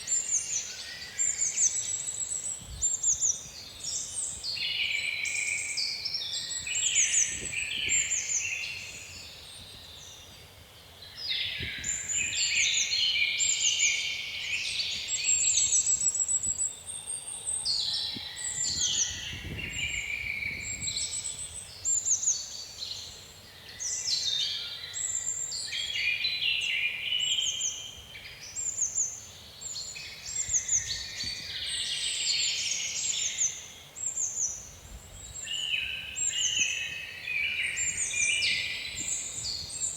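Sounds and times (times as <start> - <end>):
low wind rumble: 18.6 - 21.4.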